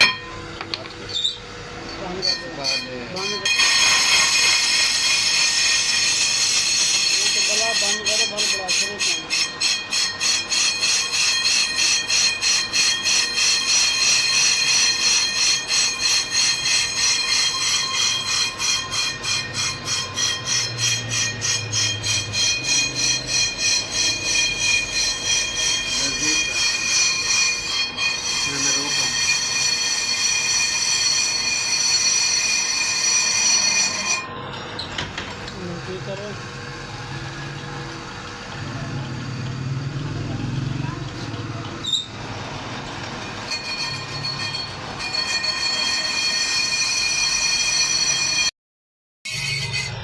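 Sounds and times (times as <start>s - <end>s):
lathe cutting tool squealing: 0.0s - 48.5s, 49.3s - 50.0s.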